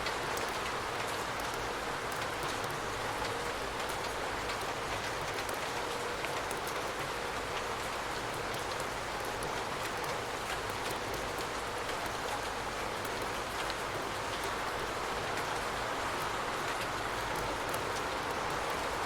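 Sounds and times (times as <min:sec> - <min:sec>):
raindrop ticks: 0:00.0 - 0:19.0.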